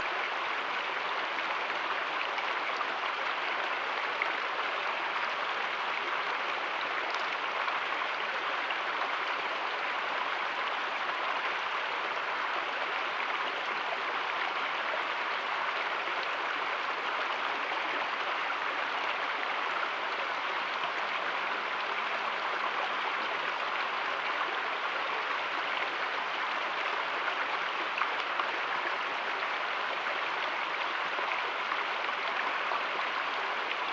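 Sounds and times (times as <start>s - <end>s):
creek water flowing: 0.0s - 33.9s.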